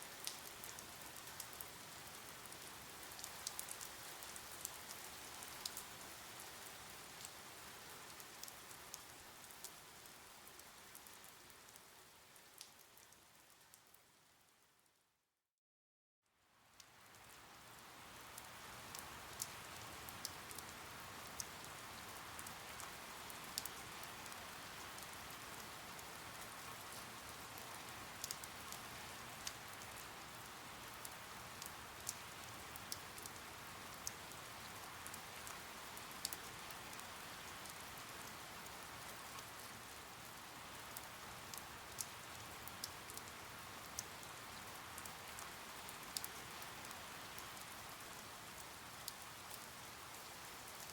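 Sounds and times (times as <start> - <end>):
steady rain hiss: 0.0 - 14.7, 16.4 - 50.9
single raindrop ticks: 0.2 - 1.6, 27.6 - 28.5.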